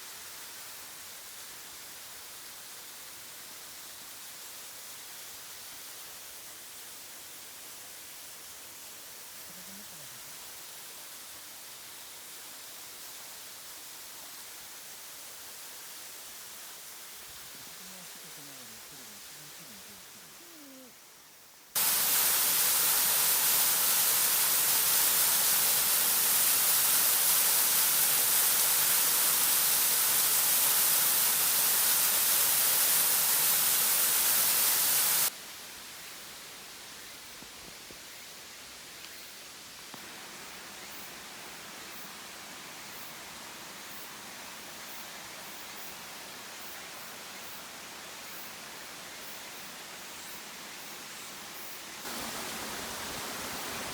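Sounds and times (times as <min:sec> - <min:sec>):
waterfall rushing: 0:21.8 - 0:35.3, 0:52.0 - 0:53.9.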